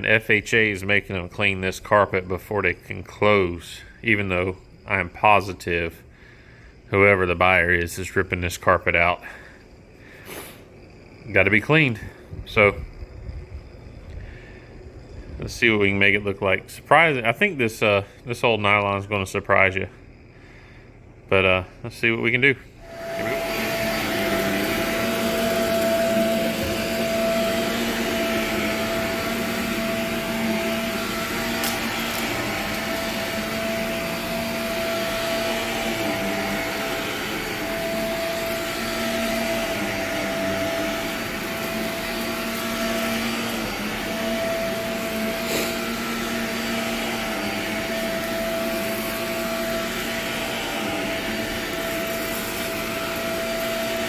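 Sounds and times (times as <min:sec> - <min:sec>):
vacuum cleaner running: 0:00.0 - 0:54.0
vacuum crunching on grit: 0:22.8 - 0:54.0.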